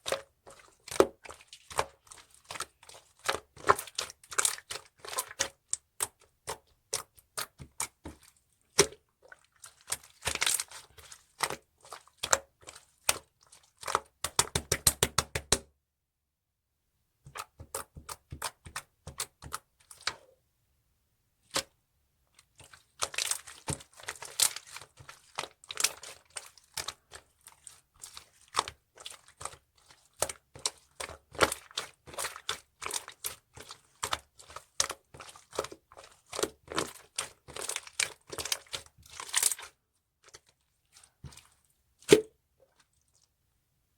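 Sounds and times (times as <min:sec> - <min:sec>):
air bubbles popping: 0:42.1 - 0:42.3.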